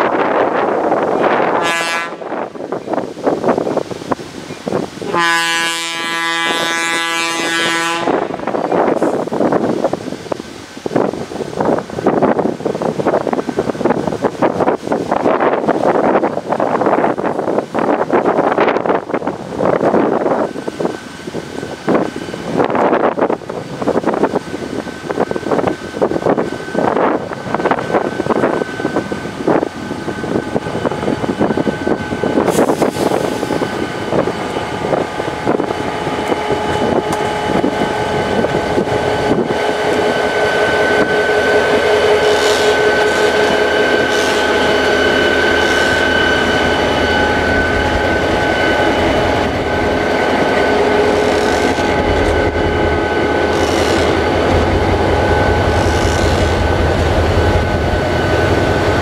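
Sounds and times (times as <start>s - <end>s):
diesel locomotive passing: 0.0s - 59.0s
rumble of train wheels: 0.0s - 59.0s
wind buffeting microphone: 0.0s - 59.0s
train wheel squeal: 35.6s - 59.0s.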